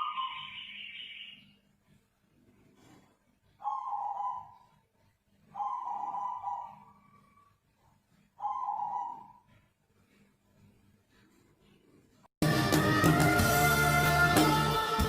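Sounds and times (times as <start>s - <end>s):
dove cooing: 3.6s - 4.7s, 5.5s - 7.4s, 8.4s - 9.5s.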